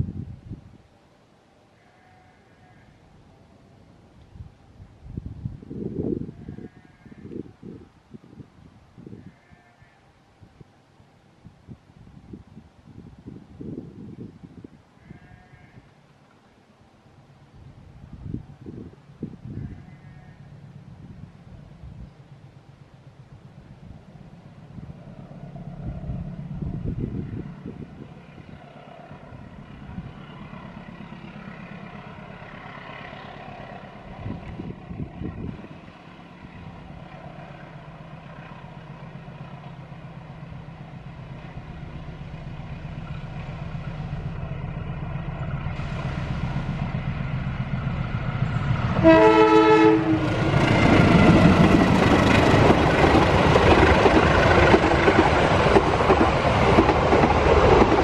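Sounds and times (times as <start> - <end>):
diesel locomotive engine drone: 15.9 - 58.0
train wheels running over rails: 28.2 - 58.0
train horn blast: 48.9 - 50.6.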